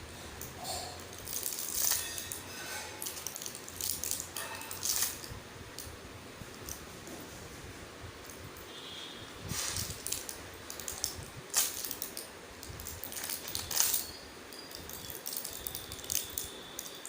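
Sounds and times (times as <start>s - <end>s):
objects clicking and rustling: 0.4s - 5.9s, 9.5s - 17.0s.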